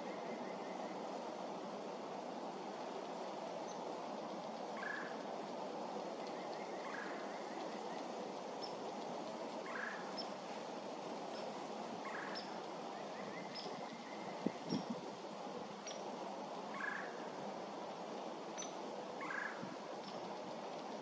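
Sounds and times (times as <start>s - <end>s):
steady hiss: 0.0s - 21.0s
wild birds calling: 6.2s - 8.1s, 9.7s - 10.3s, 11.4s - 14.8s, 16.7s - 17.3s, 18.6s - 20.2s.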